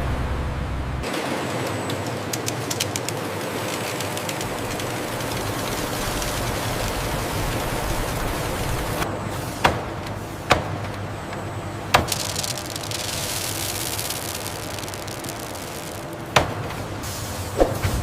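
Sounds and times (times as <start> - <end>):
steady mechanical rumble: 0.0 - 18.0
hiss: 12.0 - 18.0.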